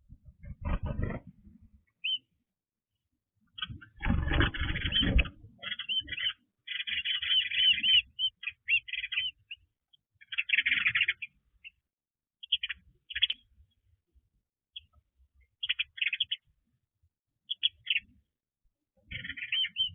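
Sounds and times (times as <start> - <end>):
birds chirping: 0.2 - 2.4, 3.5 - 11.8, 12.4 - 13.6, 15.6 - 16.6, 17.5 - 18.3, 19.0 - 19.9.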